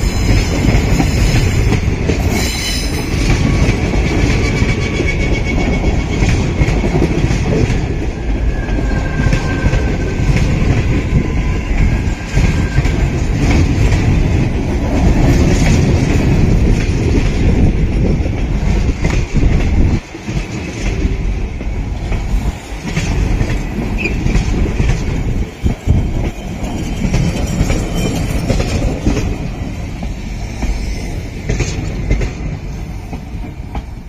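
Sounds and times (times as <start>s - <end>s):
clickety-clack over rail joints: 0.0s - 34.0s
train wheels rumbling on rails: 0.0s - 34.0s
high wheel squeal: 4.4s - 6.3s, 8.4s - 10.3s, 30.4s - 31.4s.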